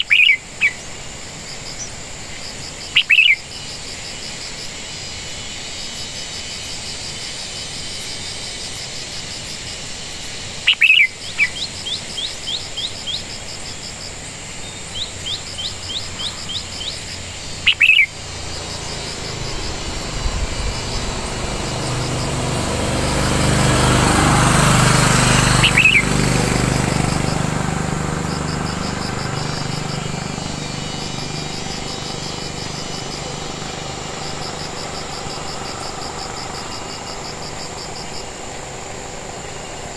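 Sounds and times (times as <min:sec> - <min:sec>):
quick bird chirps: 0:00.0 - 0:00.8, 0:02.9 - 0:03.7, 0:14.6 - 0:37.2
birds calling: 0:00.0 - 0:01.0, 0:01.8 - 0:04.0, 0:10.6 - 0:39.9
insects chorus: 0:00.0 - 0:39.9
engine passing: 0:14.6 - 0:39.9.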